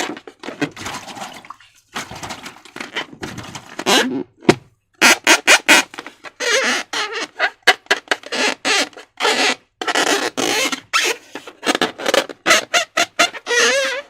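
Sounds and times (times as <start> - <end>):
balloon rubber squeaks: 0.0 - 1.4, 2.2 - 14.0
wet slime squelches: 0.8 - 2.8.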